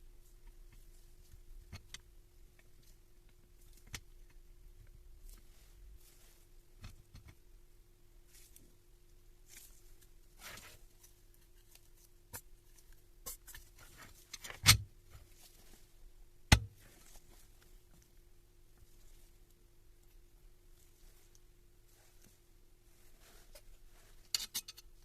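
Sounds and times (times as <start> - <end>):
faint steady hum: 0.0 - 25.0
tools clicking and clinking: 24.4 - 24.9.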